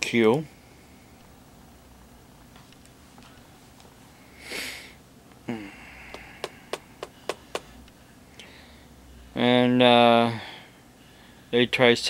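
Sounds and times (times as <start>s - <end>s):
man sniffing: 4.4s - 6.7s.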